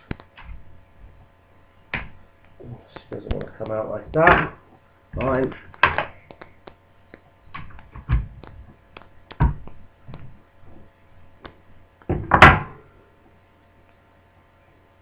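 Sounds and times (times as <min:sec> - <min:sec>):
clicks and light taps: 0:00.0 - 0:00.6, 0:01.9 - 0:10.4, 0:11.4 - 0:11.6.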